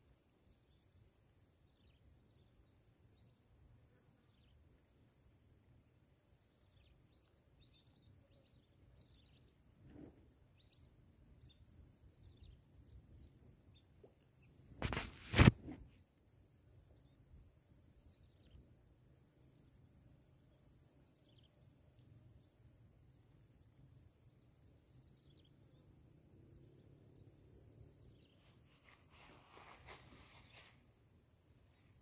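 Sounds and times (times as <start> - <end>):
bird chirps: 6.6 - 15.1, 24.3 - 26.0, 26.7 - 30.8
high-pitched hiss: 28.6 - 32.0.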